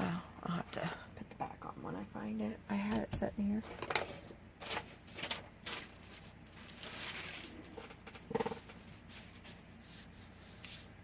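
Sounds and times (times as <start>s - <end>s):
paper shuffling on a table: 3.6s - 11.0s.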